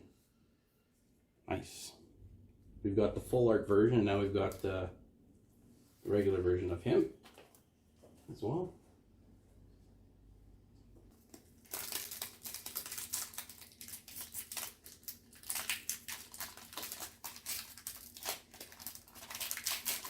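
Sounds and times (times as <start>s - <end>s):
foil card pack tearing and crinkling: 11.3s - 20.0s.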